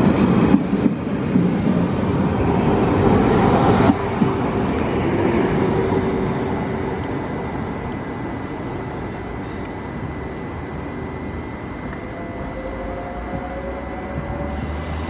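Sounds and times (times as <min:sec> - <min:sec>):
train rumbling on track: 0:00.0 - 0:15.0
faint steady whine: 0:04.0 - 0:15.0.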